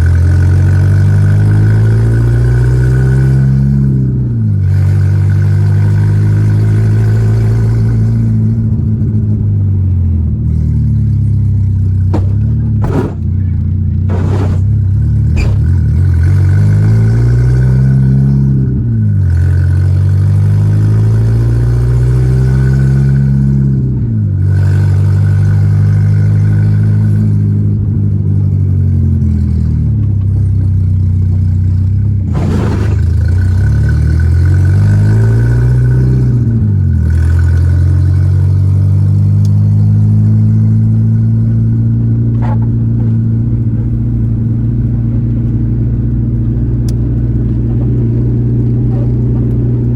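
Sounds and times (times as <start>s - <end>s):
car engine accelerating: 0.0s - 49.9s
short knock: 12.1s - 13.4s.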